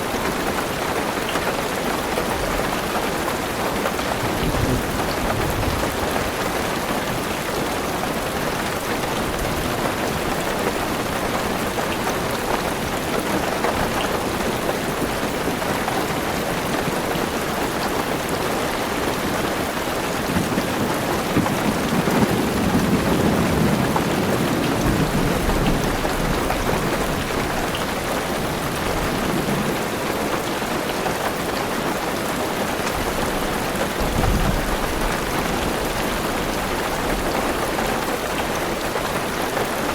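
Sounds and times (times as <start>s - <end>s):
heavy rain on a car roof: 0.0s - 39.9s
thunder rumbling: 4.1s - 7.6s, 20.0s - 29.9s, 33.0s - 37.6s.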